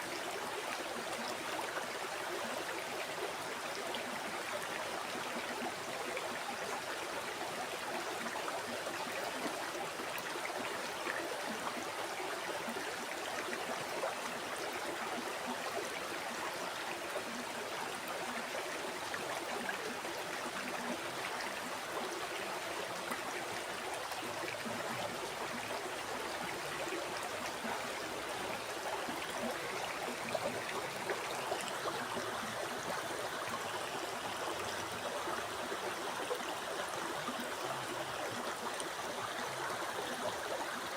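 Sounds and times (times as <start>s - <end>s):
stream flowing over rocks: 0.0s - 40.9s.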